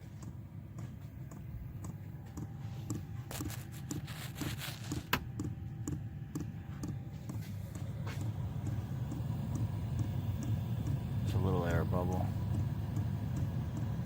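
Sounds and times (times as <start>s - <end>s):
fuel pump ticking: 0.0s - 4.1s, 4.9s - 14.0s
air heater humming: 0.0s - 14.0s.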